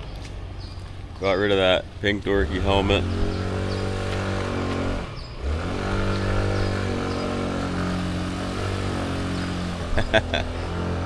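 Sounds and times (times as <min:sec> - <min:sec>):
motor scooter engine running: 0:02.2 - 0:11.0.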